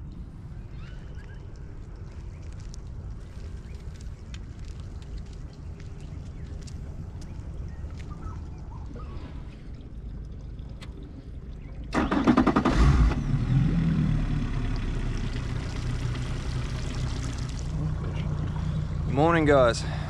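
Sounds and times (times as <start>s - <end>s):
outboard motor running: 11.9s - 20.0s.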